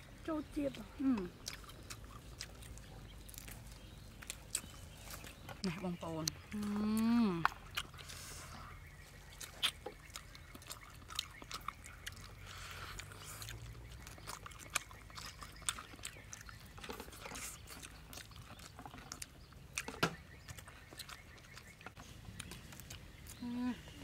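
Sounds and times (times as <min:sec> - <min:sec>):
person chewing fried chicken: 0:00.6 - 0:05.6, 0:06.2 - 0:24.0
mouth clicks and smacks: 0:09.2 - 0:23.4.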